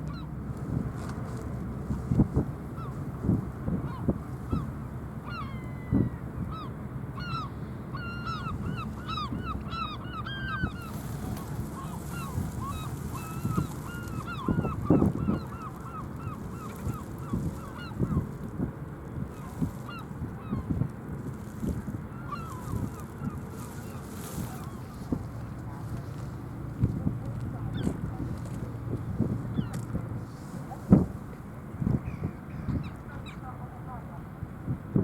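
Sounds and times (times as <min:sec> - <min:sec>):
flock of birds calling: 0:05.3 - 0:18.2, 0:22.1 - 0:25.1.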